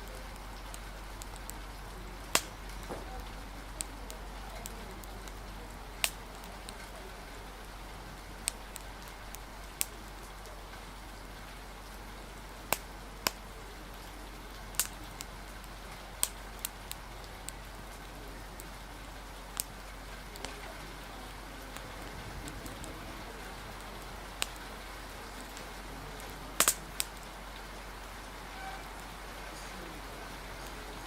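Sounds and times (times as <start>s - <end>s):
steady rain hiss: 0.0s - 31.0s
sharp pops and clicks: 0.1s - 7.0s, 8.4s - 10.5s, 12.7s - 18.7s, 23.8s - 24.7s, 26.6s - 27.3s.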